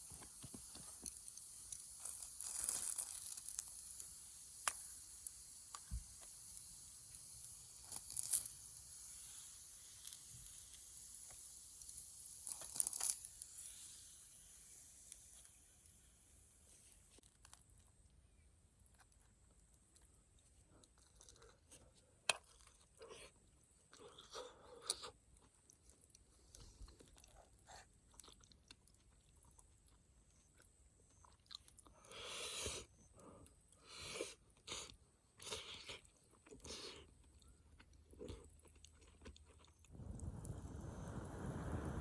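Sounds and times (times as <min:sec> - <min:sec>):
person chewing crunchy food: 0:00.1 - 0:03.9, 0:18.8 - 0:40.4
low rushing noise: 0:40.0 - 0:42.0.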